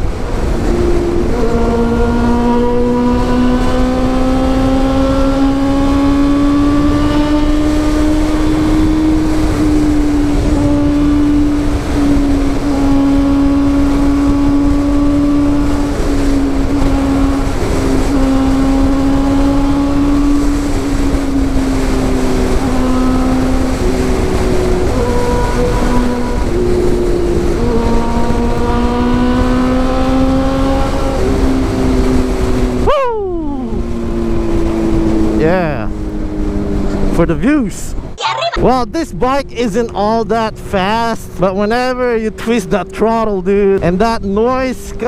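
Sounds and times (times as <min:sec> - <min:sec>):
motorcycle engine running: 0:00.0 - 0:32.9
steady rushing noise: 0:33.6 - 0:45.0.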